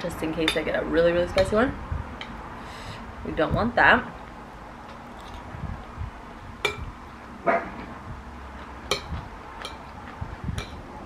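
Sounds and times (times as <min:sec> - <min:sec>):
chewing food: 0:08.5 - 0:10.8
fork clinking against ceramic bowl: 0:08.9 - 0:09.9.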